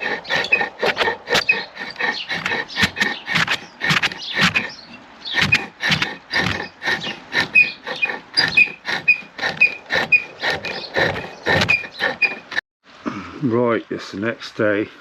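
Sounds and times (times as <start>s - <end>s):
chisel cutting wood on lathe: 0.0s - 12.6s
squeak: 0.0s - 12.6s.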